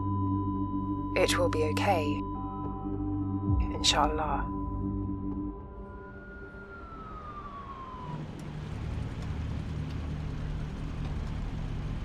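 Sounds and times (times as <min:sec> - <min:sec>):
tone gliding downward: 0:01.4 - 0:09.4
vehicle engine hum and road noise: 0:03.5 - 0:12.0.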